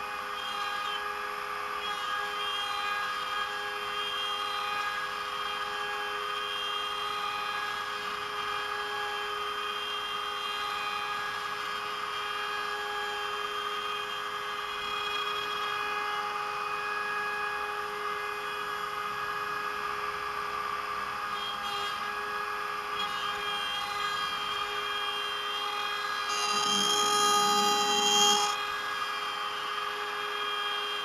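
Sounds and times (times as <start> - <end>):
router spindle whining: 0.0 - 31.0.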